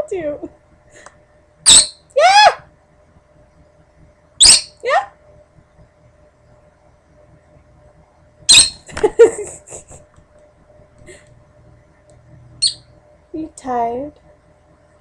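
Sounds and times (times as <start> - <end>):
lovebird chirping: 1.7 - 2.1, 4.4 - 4.8, 8.5 - 8.9, 12.6 - 12.9.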